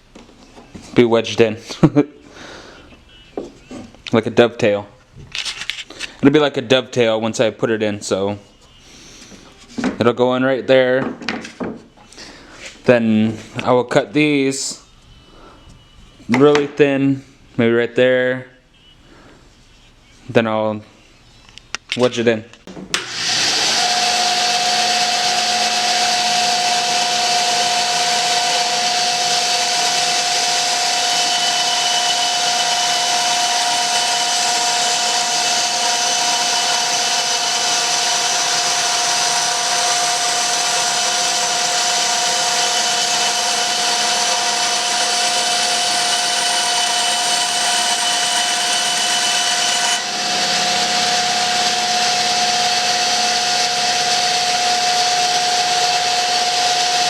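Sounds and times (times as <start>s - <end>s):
power saw cutting wood: 23.0s - 57.0s.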